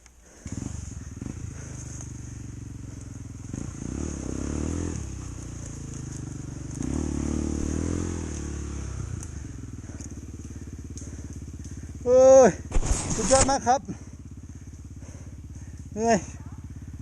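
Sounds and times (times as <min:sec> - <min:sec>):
motorcycle engine revving: 0:00.2 - 0:17.0.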